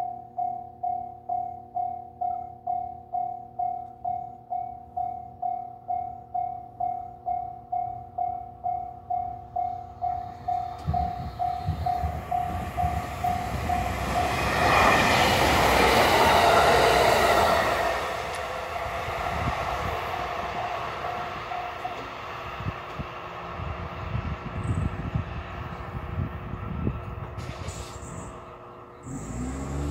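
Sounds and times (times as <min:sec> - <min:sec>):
level-crossing alarm dinging: 0:00.0 - 0:16.6
railcar passing: 0:04.5 - 0:29.9.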